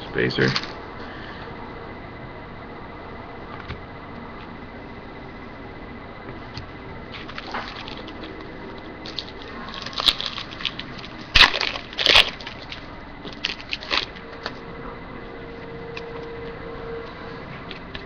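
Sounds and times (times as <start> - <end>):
wrapper crackling: 9.1 - 14.2.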